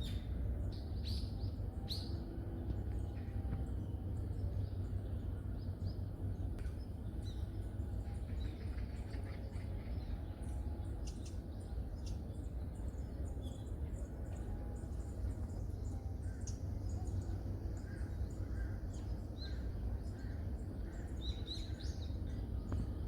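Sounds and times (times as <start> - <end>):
small birds chirping: 0.0 - 23.0
steady low rumble: 0.0 - 23.0.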